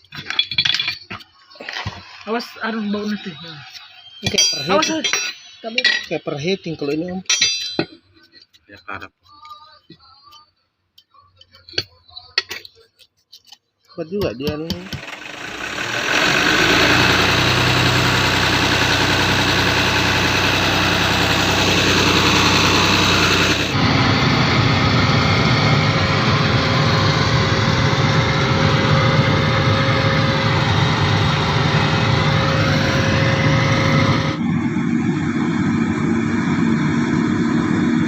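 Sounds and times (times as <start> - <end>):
excavator diesel engine running: 14.7 - 38.0.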